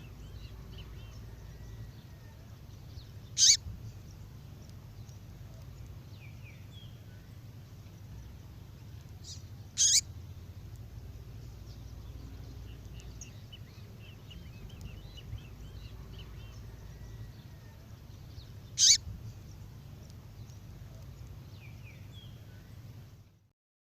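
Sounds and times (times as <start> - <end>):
faint bird twittering: 0.0 - 22.8
steady low hum: 0.0 - 23.4
songbird sharp calls: 3.3 - 3.7, 9.2 - 10.1, 18.7 - 19.1.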